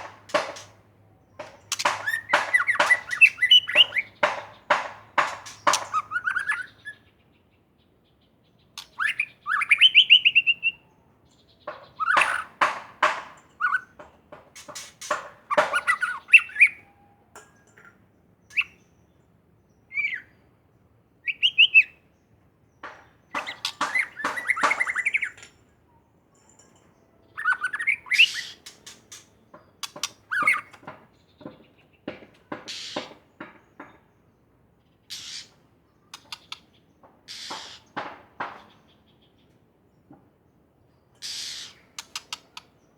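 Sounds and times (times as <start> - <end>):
bird singing whistles and rattles: 0.0 - 7.1, 8.8 - 18.9, 19.9 - 20.4, 21.2 - 22.0, 22.8 - 25.7, 26.3 - 34.1, 35.1 - 39.5, 41.2 - 42.9.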